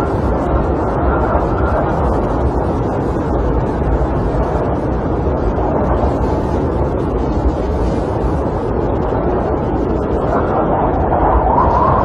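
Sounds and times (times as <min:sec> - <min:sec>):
snowstorm wind blowing: 0:00.0 - 0:12.0.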